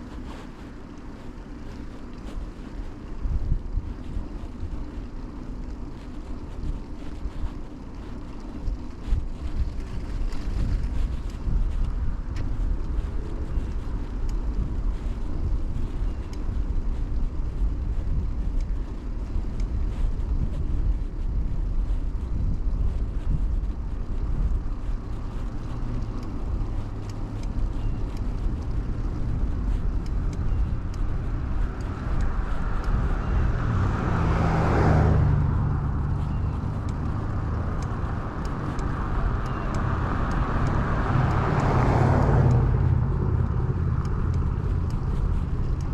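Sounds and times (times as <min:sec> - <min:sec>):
bicycle tyres rolling on pavement: 0:00.0 - 0:45.9
faint clicks and rattles: 0:00.0 - 0:45.9
wind on microphone: 0:00.0 - 0:45.9
car passing close by: 0:32.6 - 0:45.4.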